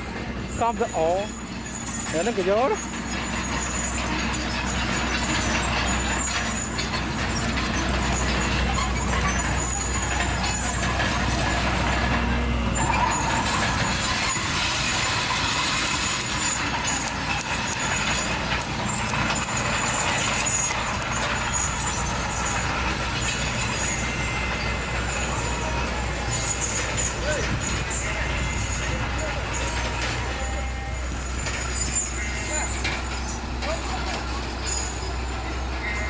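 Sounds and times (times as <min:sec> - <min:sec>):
bulldozer diesel engine running: 0:00.0 - 0:36.0.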